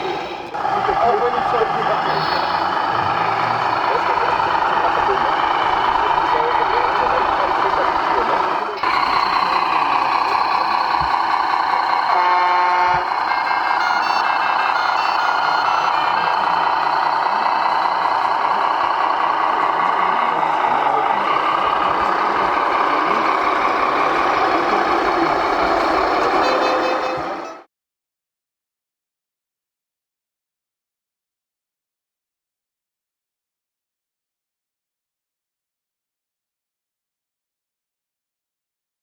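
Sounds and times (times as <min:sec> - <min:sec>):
model trucks mechanical din: 0:00.0 - 0:27.7
reversing alarm beep: 0:10.4 - 0:18.4.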